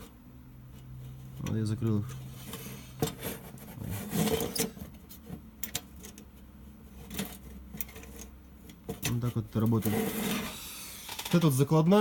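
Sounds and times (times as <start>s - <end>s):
vent slats scraping: 0.0s - 11.6s.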